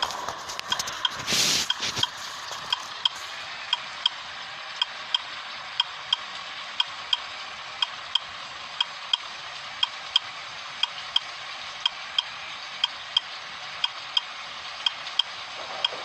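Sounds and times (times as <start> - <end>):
steady hiss: 0.0 - 3.4.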